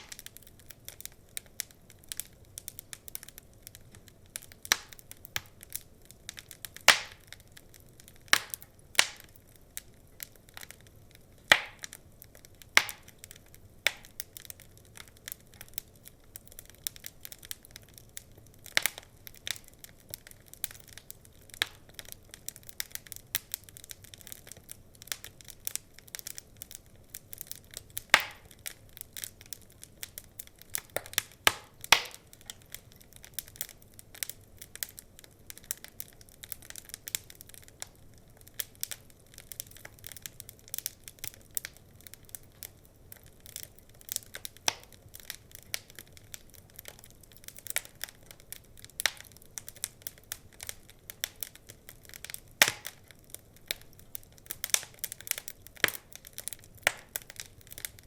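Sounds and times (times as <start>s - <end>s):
faint steady hiss: 0.0s - 58.0s
wood fire crackling: 0.0s - 58.0s.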